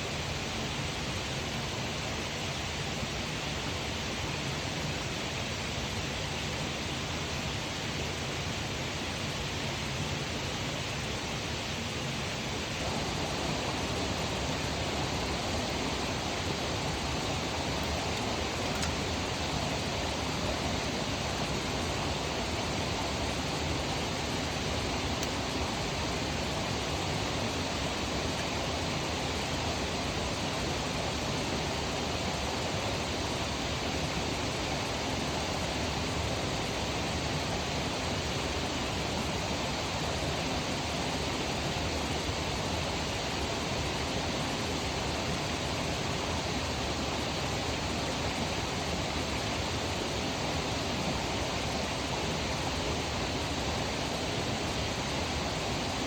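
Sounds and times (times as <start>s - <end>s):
flowing water rushing: 12.7s - 56.0s.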